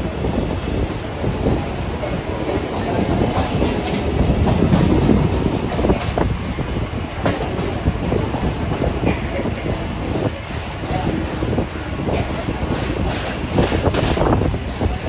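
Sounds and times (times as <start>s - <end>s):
train wheels rumbling on rail: 0.0s - 15.0s
clacks over rail joints: 2.0s - 6.3s, 7.2s - 11.6s, 12.2s - 14.4s.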